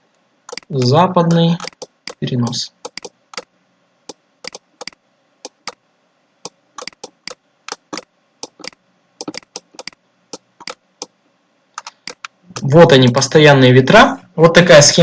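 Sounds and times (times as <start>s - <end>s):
keyboard typing: 0.5s - 3.5s, 4.1s - 5.8s, 6.4s - 11.2s, 11.8s - 13.3s.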